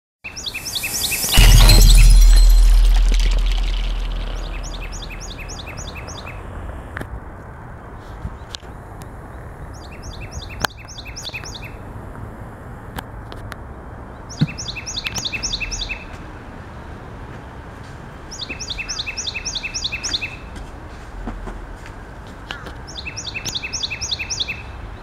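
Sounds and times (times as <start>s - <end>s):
songbird singing: 0.3s - 6.4s, 14.3s - 16.1s, 22.9s - 24.7s
steady outdoor hiss: 0.3s - 15.6s.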